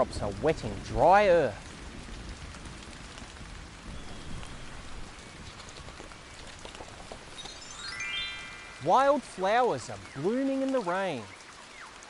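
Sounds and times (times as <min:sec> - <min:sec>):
rain falling: 0:00.0 - 0:12.0
bell-like chime tones: 0:07.4 - 0:09.2.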